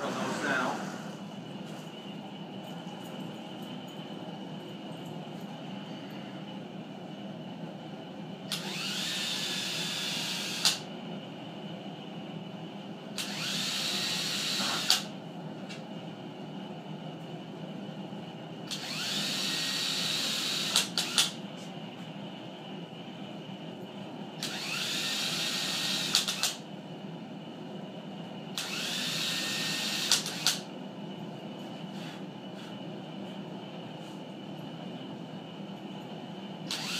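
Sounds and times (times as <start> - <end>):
power drill driving screws: 8.5 - 10.8, 13.2 - 15.1, 18.7 - 21.4, 24.4 - 26.6, 28.6 - 30.6, 36.7 - 36.9.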